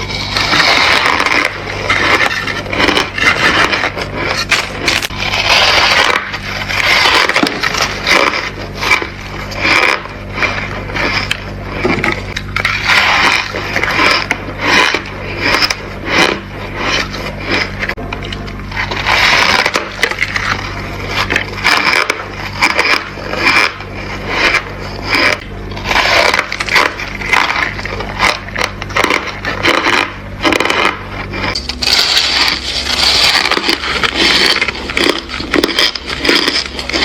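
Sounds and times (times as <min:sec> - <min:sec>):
ice being chewed: 0:00.0 - 0:37.0.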